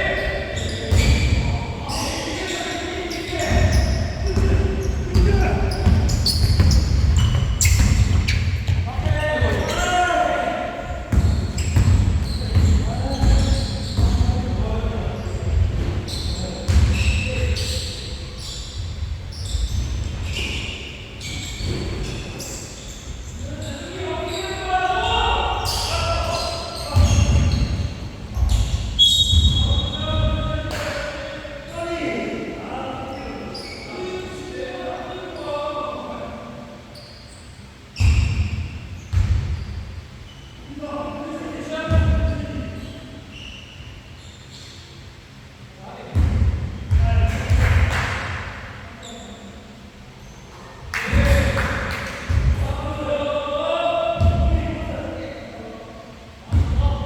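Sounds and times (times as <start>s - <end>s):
shoe squeak: 0.0s - 10.3s, 11.0s - 14.4s, 15.2s - 24.8s, 25.6s - 30.2s, 33.1s - 34.4s, 36.9s - 40.8s, 42.2s - 45.0s, 49.0s - 49.6s
basketball bouncing on gym floor: 3.4s - 9.8s, 11.1s - 14.6s, 38.0s - 39.6s, 46.1s - 47.9s, 52.3s - 52.6s, 54.2s - 54.7s.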